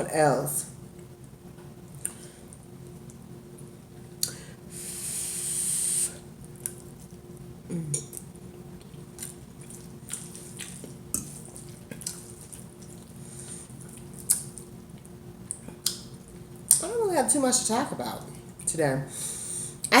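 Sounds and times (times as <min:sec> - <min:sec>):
close-miked eating hiss: 0:04.2 - 0:06.8.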